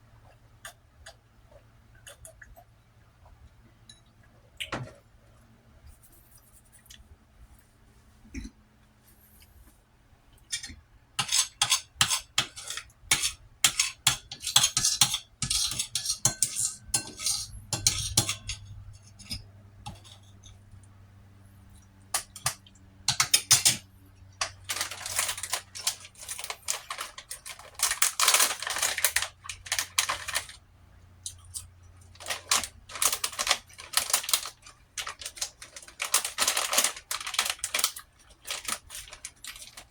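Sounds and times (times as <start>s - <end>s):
utensil scraping a plate: 10.6s - 20.6s.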